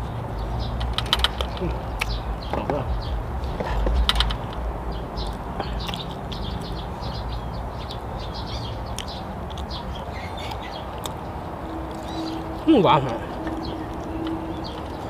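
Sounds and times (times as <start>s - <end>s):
small birds chirping: 0.0s - 15.0s
man chewing with mouth clicks: 5.2s - 6.8s, 8.9s - 9.8s, 10.4s - 12.2s.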